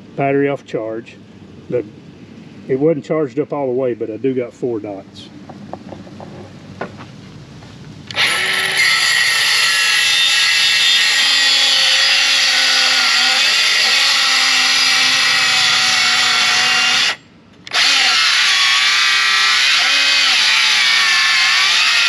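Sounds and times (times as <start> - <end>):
circular saw ripping a board: 8.1 - 22.0.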